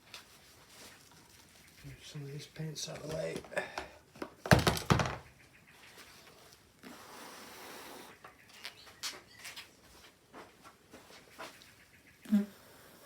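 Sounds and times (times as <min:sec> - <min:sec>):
paint pots knocking on table: 0:04.5 - 0:05.3.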